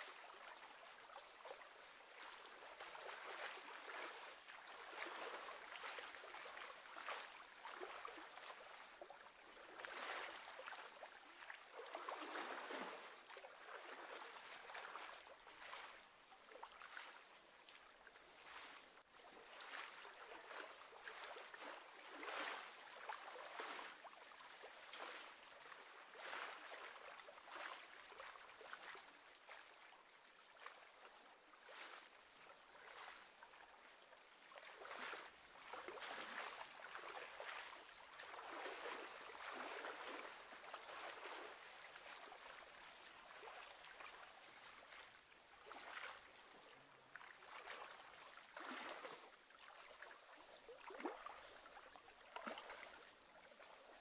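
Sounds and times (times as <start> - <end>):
small waves lapping: 0.0 - 54.0.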